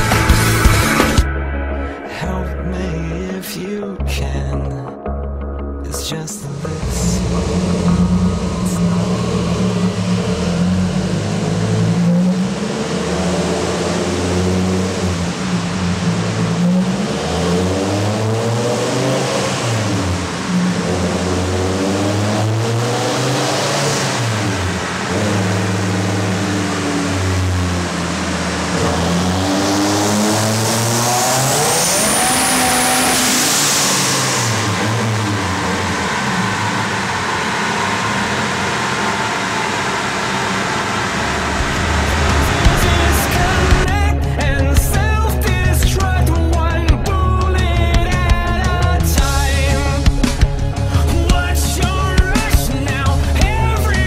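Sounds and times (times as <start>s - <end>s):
engine revving: 0.0s - 3.7s, 5.8s - 54.0s
high turbo whistle: 7.2s - 44.4s.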